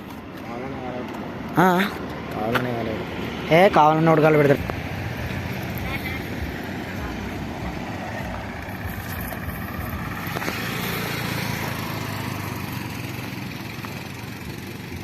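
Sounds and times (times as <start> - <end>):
road and wind noise: 0.0 - 15.0
lorry engine running: 3.0 - 15.0.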